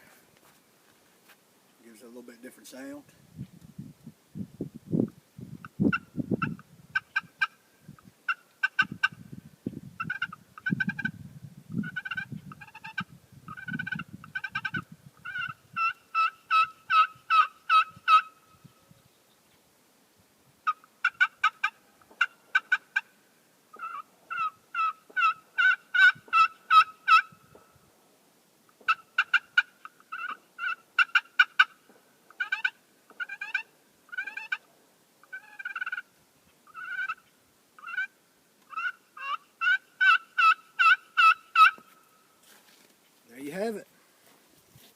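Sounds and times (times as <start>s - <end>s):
turkey call yelps: 11.8s - 18.4s, 20.6s - 23.1s, 23.7s - 27.4s, 28.9s - 34.6s, 35.2s - 36.1s, 36.7s - 42.0s.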